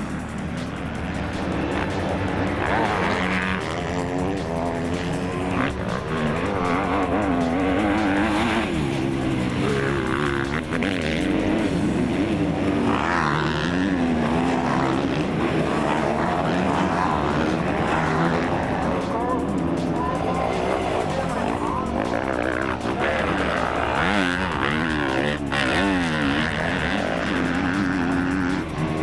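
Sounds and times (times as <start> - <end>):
motorcycle engines revving: 0.0 - 29.0.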